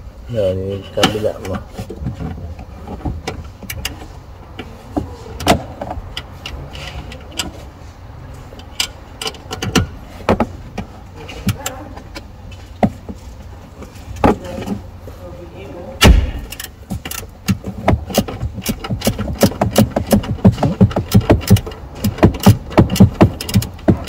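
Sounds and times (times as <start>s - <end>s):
steady low hum: 0.0s - 24.0s
hand tools clicking on metal: 16.4s - 24.0s.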